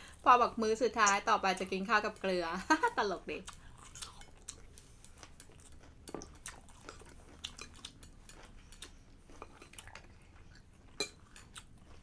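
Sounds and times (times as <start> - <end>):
faint chewing: 3.4 - 12.0.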